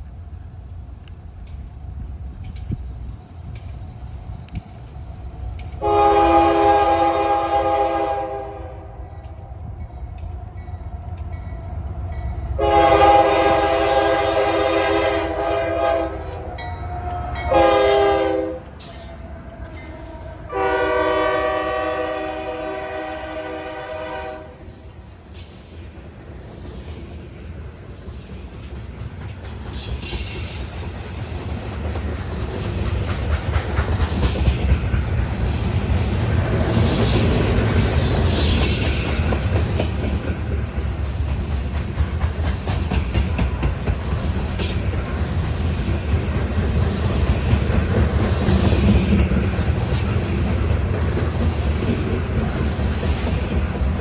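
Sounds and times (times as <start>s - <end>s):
train rumbling past: 0.0s - 54.0s
locomotive horn: 5.8s - 9.1s, 12.6s - 24.7s
high wheel squeal: 29.7s - 31.4s, 36.7s - 42.4s.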